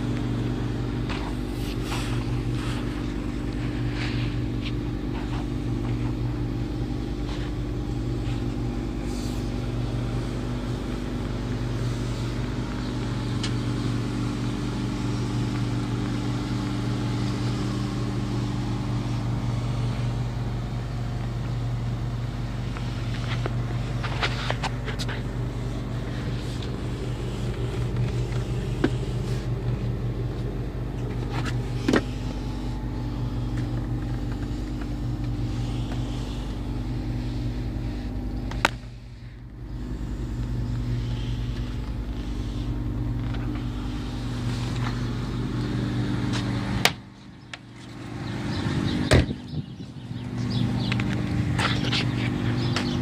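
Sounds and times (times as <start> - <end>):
rotary engine idling: 0.0 - 53.0.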